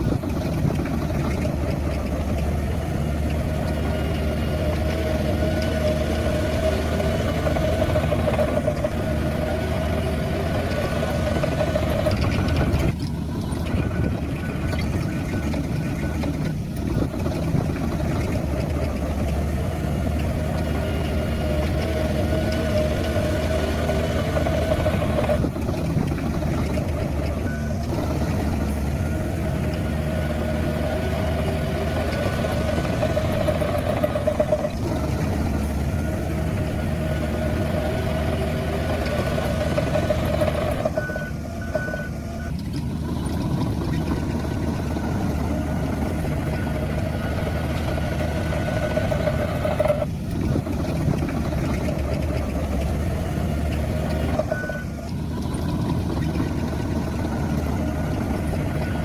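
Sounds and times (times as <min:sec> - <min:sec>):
diesel engines running: 0:00.0 - 0:59.0
reversing alarm beeps: 0:40.4 - 0:42.6, 0:54.3 - 0:55.1.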